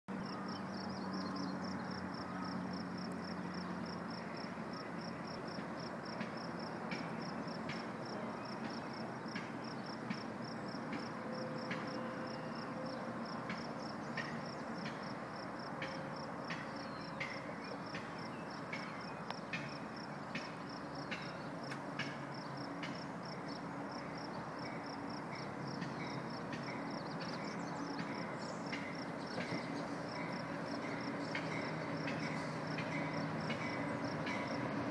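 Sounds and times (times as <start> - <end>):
insect chirping: 22.3 - 34.9.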